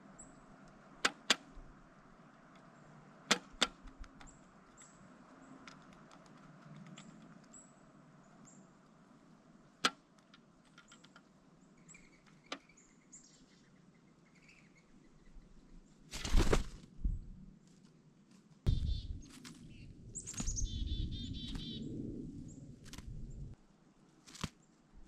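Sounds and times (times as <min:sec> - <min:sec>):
faint high bird chirps: 0:10.7 - 0:16.0, 0:18.7 - 0:23.5
woodpecker knocking: 0:18.7 - 0:21.8
wingbeats rush: 0:18.7 - 0:23.6.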